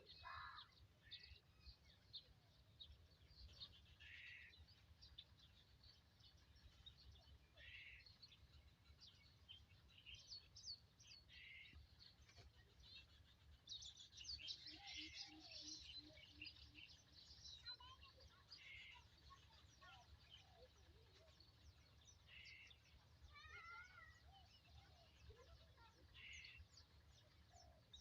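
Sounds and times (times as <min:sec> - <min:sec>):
birds chirping and whistling: 0:00.0 - 0:28.0.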